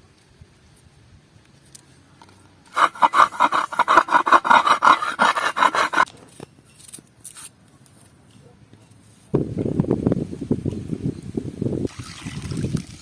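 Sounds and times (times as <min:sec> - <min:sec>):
rapid rhythmic rasping strokes: 0:02.8 - 0:06.1.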